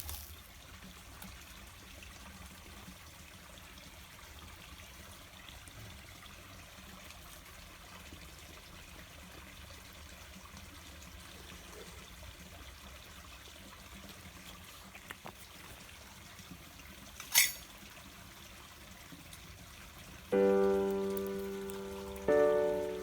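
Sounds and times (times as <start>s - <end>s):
water trickling: 5.2s - 23.0s.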